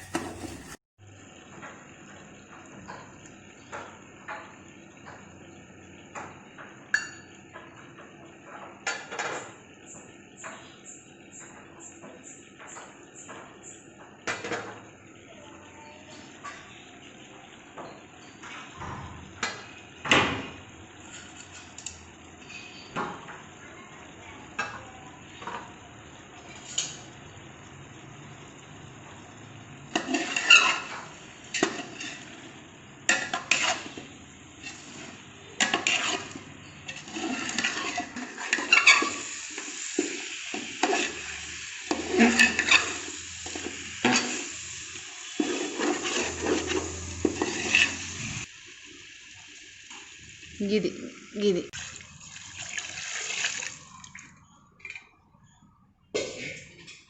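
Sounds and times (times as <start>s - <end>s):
frying sizzle: 0.0s - 54.1s
metal utensils clinking on pot: 29.9s - 32.4s, 33.1s - 48.2s.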